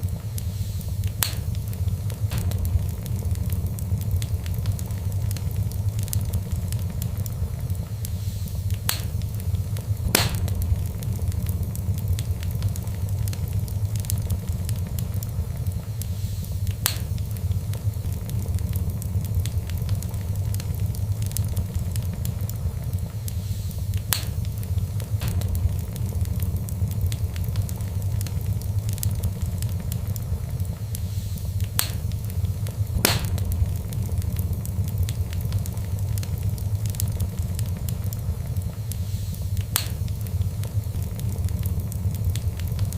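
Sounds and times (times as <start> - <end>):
fire crackling: 0.0 - 42.9
sharp loud pops: 2.2 - 3.2, 10.0 - 11.1, 33.0 - 33.7.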